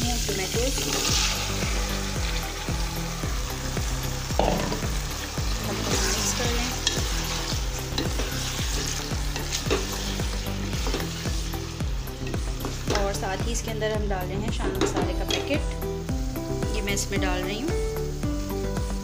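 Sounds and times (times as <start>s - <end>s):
tomatoes sizzling in hot oil: 0.0s - 19.0s.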